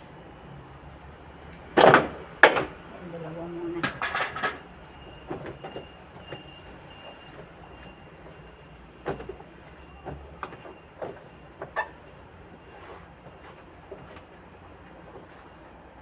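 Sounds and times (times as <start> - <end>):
containers knocking and clattering: 3.8 - 4.7.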